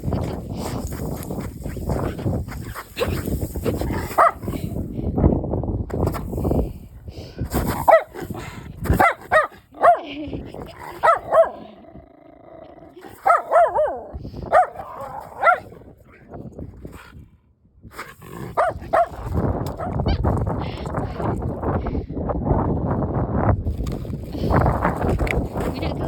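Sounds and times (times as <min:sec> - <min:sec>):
dog barking: 0:04.1 - 0:04.5, 0:07.8 - 0:08.2, 0:09.0 - 0:10.1, 0:11.0 - 0:11.7, 0:13.1 - 0:15.8, 0:18.5 - 0:19.2.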